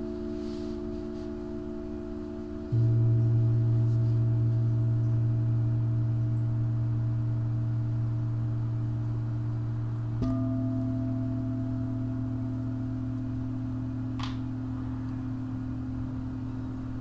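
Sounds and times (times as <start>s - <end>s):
deep bowl tone: 0.0s - 17.0s
singing bowls ringing: 10.2s - 17.0s.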